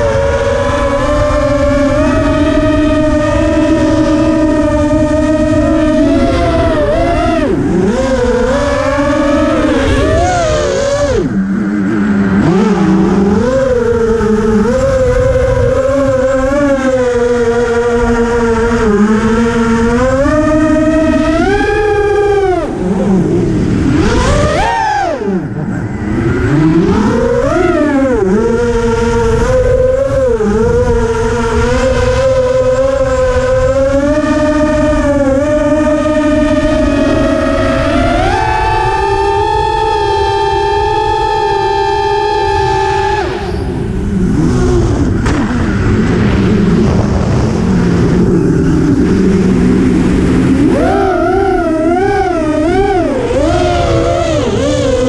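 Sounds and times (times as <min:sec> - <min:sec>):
drone motors whining: 0:00.0 - 0:55.0
low wind rush: 0:00.0 - 0:55.0
rushing noise: 0:20.9 - 0:27.6.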